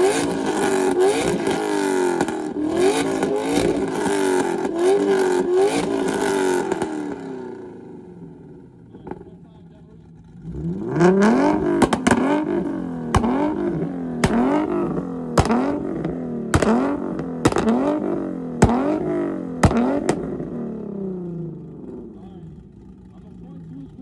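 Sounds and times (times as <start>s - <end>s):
exhaust backfire bangs: 0.0s - 7.4s, 10.4s - 22.2s
car engine revving: 0.0s - 24.0s.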